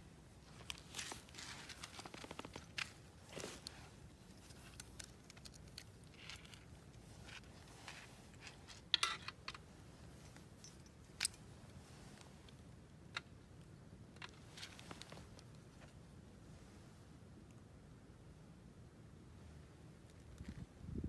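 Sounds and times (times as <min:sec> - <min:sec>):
light handling sounds: 0:00.1 - 0:16.8.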